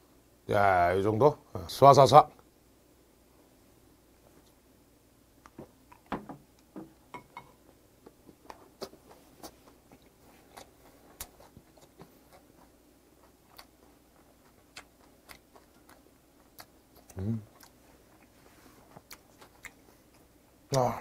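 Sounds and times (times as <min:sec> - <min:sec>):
chewing wet mouth clicks: 0:13.5 - 0:13.8, 0:14.4 - 0:18.3, 0:19.0 - 0:19.8.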